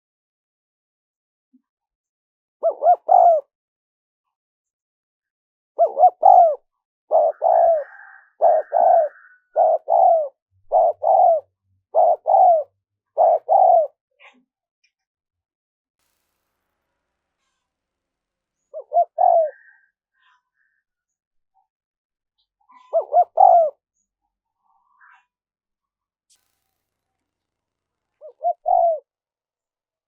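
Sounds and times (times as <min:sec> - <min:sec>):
dove cooing: 0:02.6 - 0:03.5, 0:05.8 - 0:14.0, 0:18.7 - 0:19.9, 0:22.8 - 0:23.8, 0:28.2 - 0:29.1.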